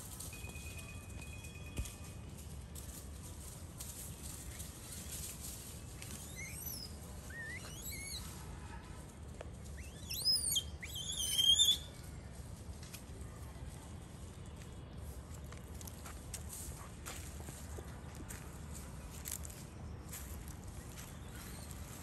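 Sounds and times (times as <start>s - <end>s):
steady low background noise: 0.0s - 22.0s
bird whistling calls: 6.2s - 8.3s, 9.8s - 12.0s.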